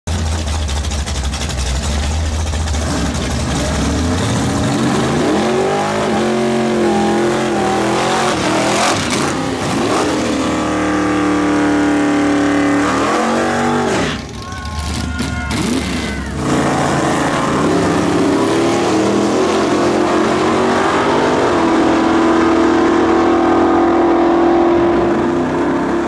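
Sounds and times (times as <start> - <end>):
engines idling with deep rumble: 0.0 - 5.2, 14.0 - 18.5
tyres spinning in burnout: 0.4 - 22.0
engine revving: 1.7 - 26.0.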